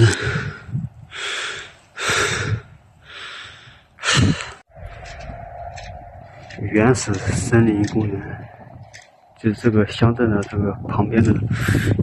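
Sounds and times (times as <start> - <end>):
person breathing hard: 0.0 - 6.6, 11.5 - 12.0.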